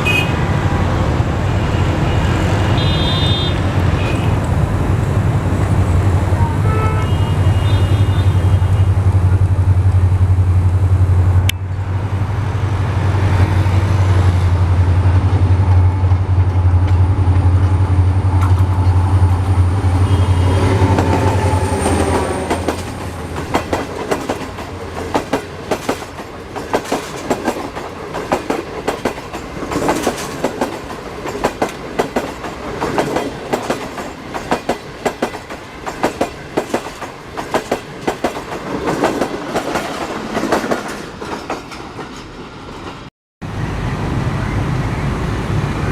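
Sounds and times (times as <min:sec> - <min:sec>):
diesel locomotive engine drone: 0:00.0 - 0:27.4, 0:41.8 - 0:45.9
train wheels clattering over rail joints: 0:22.4 - 0:43.1.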